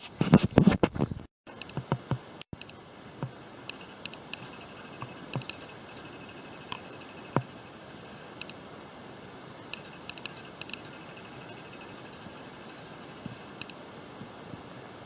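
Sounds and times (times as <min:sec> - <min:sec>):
light clicks and ticks: 0:01.5 - 0:05.7, 0:08.4 - 0:08.6, 0:09.7 - 0:11.0, 0:12.7 - 0:14.6
faint background hiss: 0:01.5 - 0:15.0
high whistled note: 0:05.6 - 0:07.3, 0:11.0 - 0:12.4.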